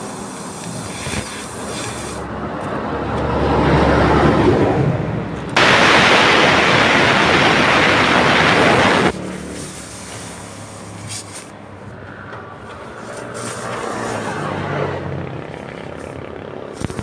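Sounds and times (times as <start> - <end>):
compressed air hissing: 0.0 - 2.3, 5.6 - 12.0, 12.6 - 14.8.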